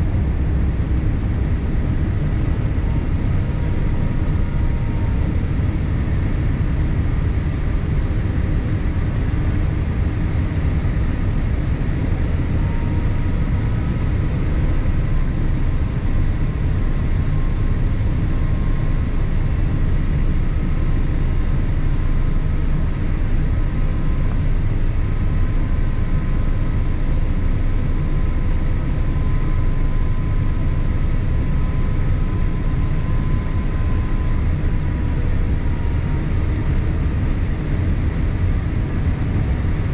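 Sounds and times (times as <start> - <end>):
engine and airflow rumble: 0.0 - 39.9
faint steady whines: 0.0 - 39.9.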